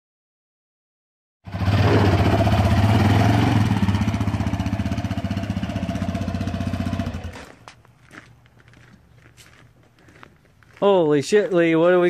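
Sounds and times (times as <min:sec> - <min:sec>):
single-cylinder engine running: 0:01.5 - 0:07.6.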